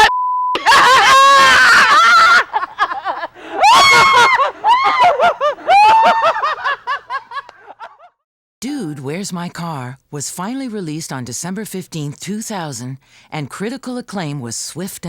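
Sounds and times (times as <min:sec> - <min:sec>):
people laughing hard: 0:00.6 - 0:08.2.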